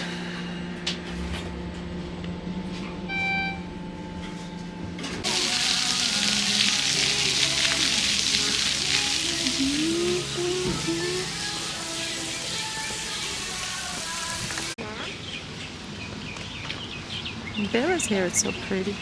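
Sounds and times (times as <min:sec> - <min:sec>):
short electronic beep: 0:03.1 - 0:03.8
music: 0:05.2 - 0:14.8.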